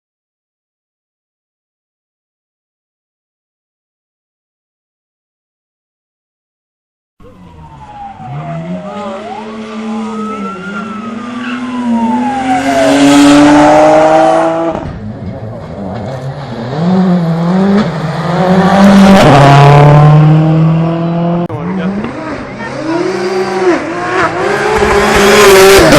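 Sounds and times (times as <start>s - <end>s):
tyres skidding: 7.2s - 25.9s
rally car engine revving: 7.7s - 25.9s.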